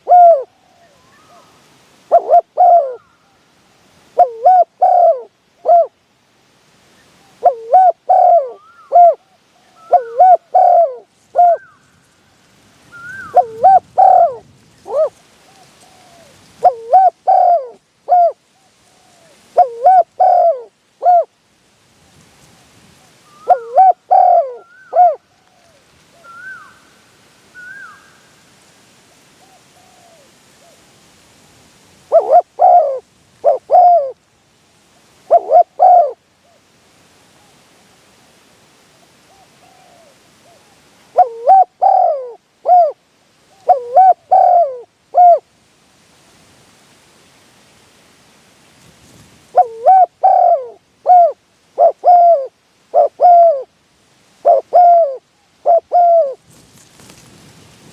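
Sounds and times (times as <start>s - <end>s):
dove cooing: 0.0s - 1.5s, 2.1s - 3.2s, 4.2s - 6.0s, 7.3s - 11.9s, 12.9s - 18.4s, 19.0s - 21.3s, 23.3s - 26.8s, 32.1s - 34.2s, 35.3s - 36.2s, 39.3s - 45.4s, 49.5s - 53.7s, 54.4s - 56.4s.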